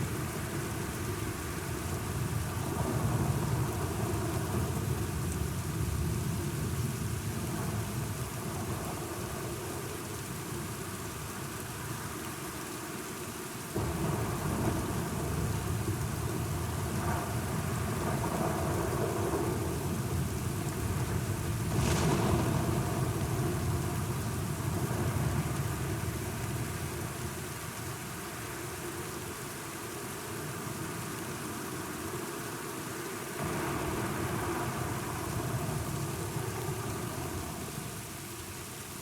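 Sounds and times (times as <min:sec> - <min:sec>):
steady rain: 0:00.0 - 0:39.0
thunder rumbling: 0:13.8 - 0:26.5, 0:33.4 - 0:38.1
sharp thunder crack: 0:21.6 - 0:24.0.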